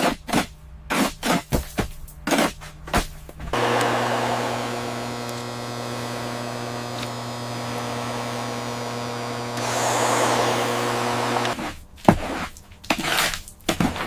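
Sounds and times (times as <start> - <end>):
small electric motor running: 3.6 - 11.6.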